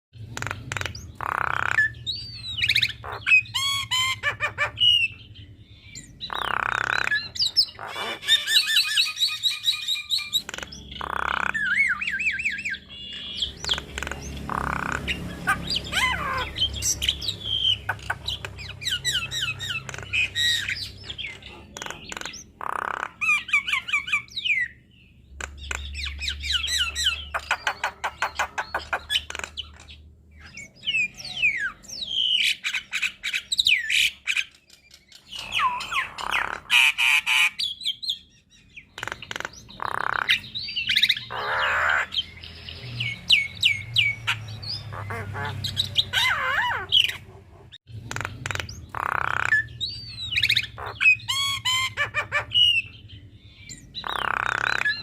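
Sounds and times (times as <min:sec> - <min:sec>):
bird singing varied song: 0:00.2 - 0:55.0.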